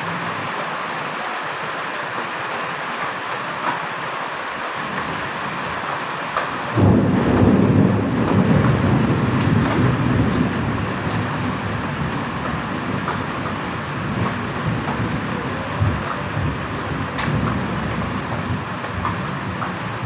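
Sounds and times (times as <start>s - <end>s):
heavy rain: 0.0s - 20.0s
thunder rumbling: 6.6s - 20.0s.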